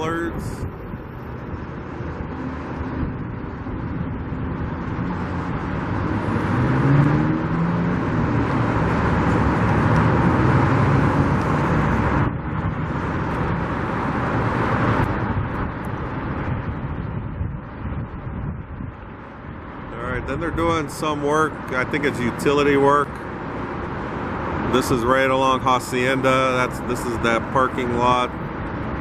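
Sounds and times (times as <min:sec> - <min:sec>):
vehicles driving past: 0:00.0 - 0:29.0
engine accelerating: 0:01.0 - 0:17.1.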